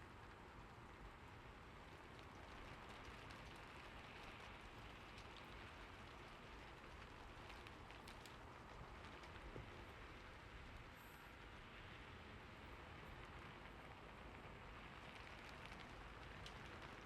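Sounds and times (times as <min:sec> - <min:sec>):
faint rain hiss: 0:00.0 - 0:17.0.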